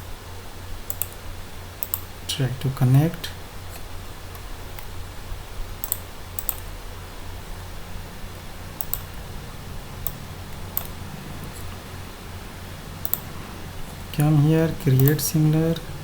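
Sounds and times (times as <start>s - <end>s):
low electrical hum: 0.0s - 16.0s
mouse and keyboard clicks: 0.9s - 1.2s, 1.8s - 2.1s, 5.8s - 6.7s, 8.8s - 9.1s, 13.0s - 13.3s.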